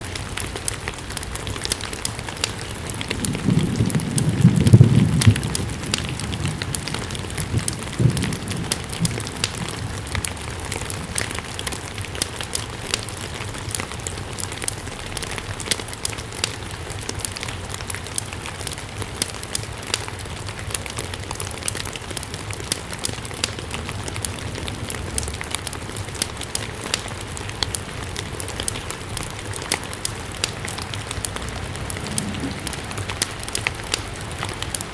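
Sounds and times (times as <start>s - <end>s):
steady rain: 0.0s - 34.9s
wood fire crackling: 0.0s - 34.9s
low rumble: 30.3s - 34.9s.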